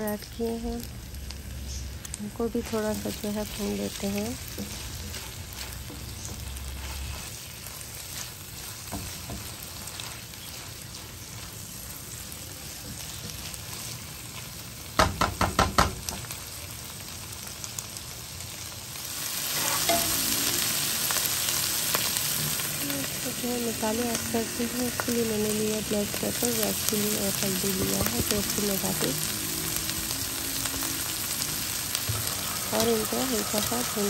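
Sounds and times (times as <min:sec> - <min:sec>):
vegetables sizzling in oil: 0:00.0 - 0:34.0
spatula stirring in pan: 0:02.5 - 0:14.5, 0:19.3 - 0:21.3.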